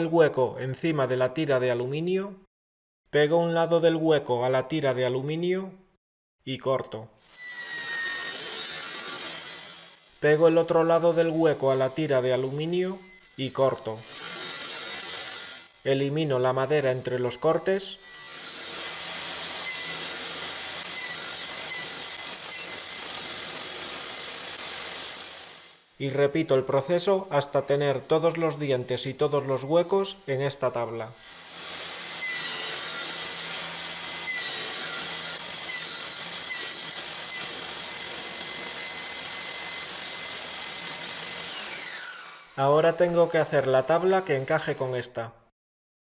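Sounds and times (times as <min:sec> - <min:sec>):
table saw whirring: 0:07.2 - 0:25.9, 0:31.2 - 0:42.6.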